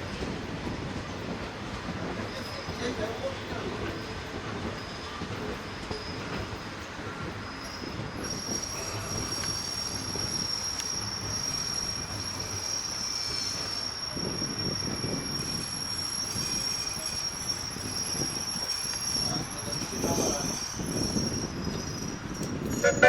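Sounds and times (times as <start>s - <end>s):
train wheels squealing on rails: 0.0s - 23.0s.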